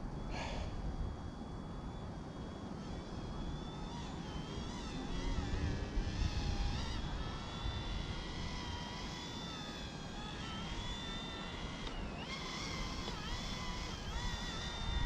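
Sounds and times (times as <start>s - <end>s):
rc helicopter motor whining: 0.0s - 15.0s
wind buffeting microphone: 2.8s - 9.2s.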